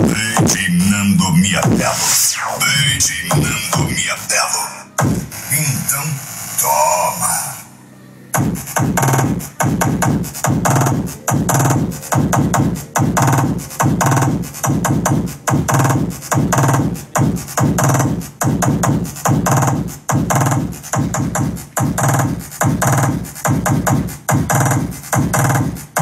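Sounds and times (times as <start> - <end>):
funk music with heavy bass beat: 0.0 - 7.6, 8.3 - 26.0
chopped vocal samples: 0.0 - 7.7.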